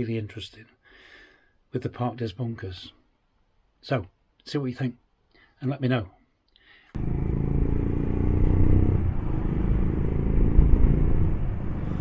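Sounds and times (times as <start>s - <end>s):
motorcycle engine hum: 7.0s - 12.0s
wind and road noise: 7.0s - 12.0s.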